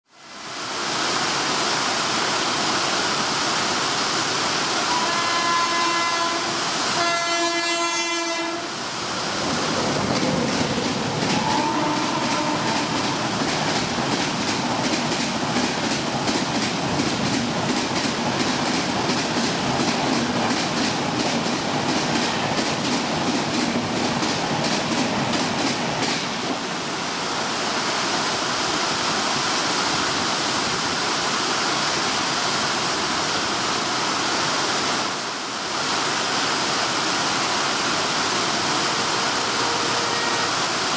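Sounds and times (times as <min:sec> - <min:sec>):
heavy rain: 0:00.1 - 0:40.9
train horn blasts: 0:04.8 - 0:08.8, 0:11.4 - 0:13.1, 0:39.0 - 0:40.6
train wheels clickety-clack: 0:09.5 - 0:26.7.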